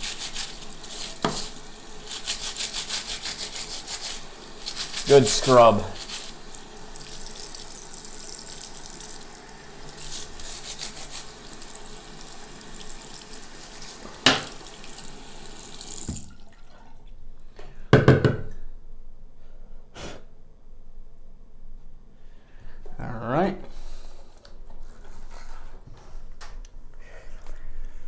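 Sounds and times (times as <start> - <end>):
filter cartridge being scrubbed: 0.0 - 14.6
tap water running into sink: 0.0 - 17.1.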